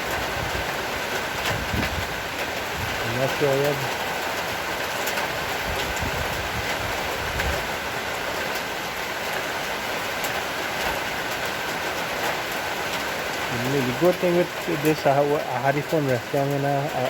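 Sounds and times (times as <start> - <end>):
heavy rain hissing: 0.0 - 17.0
raindrops ticking close by: 0.0 - 17.0.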